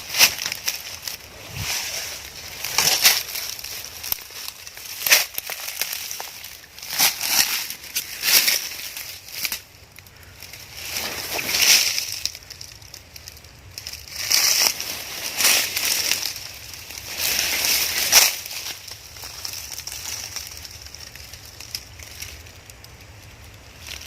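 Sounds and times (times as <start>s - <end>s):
rustling and crunching: 0.0s - 24.0s.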